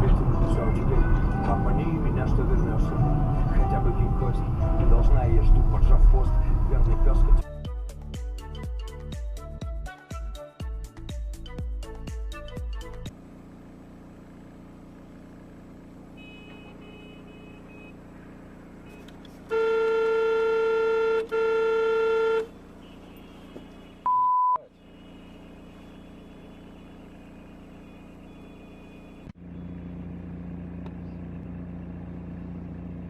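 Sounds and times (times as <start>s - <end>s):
vehicle engine and road hum: 0.0s - 7.6s, 12.8s - 33.0s
vehicle horn: 16.1s - 29.3s.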